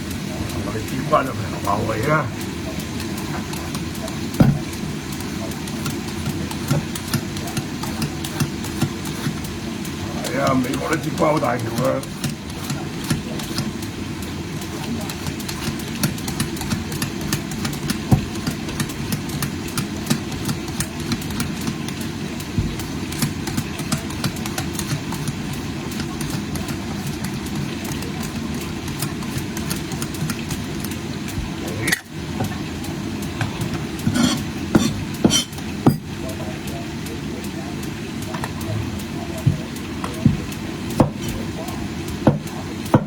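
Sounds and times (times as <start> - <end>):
meat frying in hot oil: 0.0 - 43.0
sharp knocks: 4.4 - 4.7.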